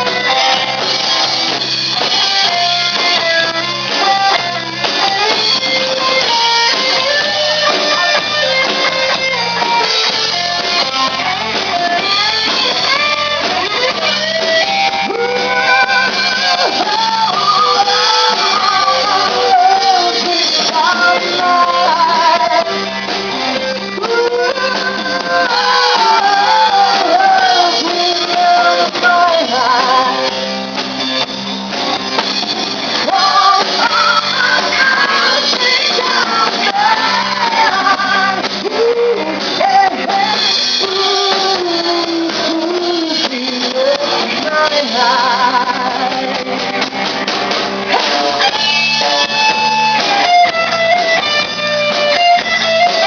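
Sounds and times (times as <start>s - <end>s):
person singing: 0.0s - 30.5s, 32.9s - 46.8s
steady drum beat: 0.0s - 53.0s
strummed guitars: 0.0s - 53.0s.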